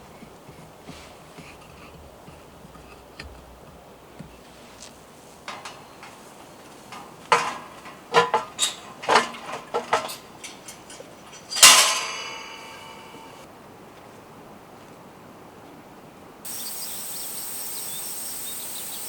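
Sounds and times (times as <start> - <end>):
metal cookware clinking: 5.4 - 13.5
loud ringing metallic clang: 11.4 - 13.5.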